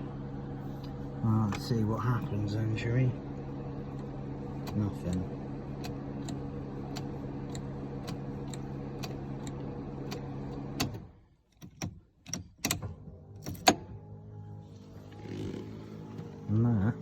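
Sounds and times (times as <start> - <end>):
radiator fans humming: 0.0 - 17.0
sharp clicks and knocks: 5.8 - 13.8.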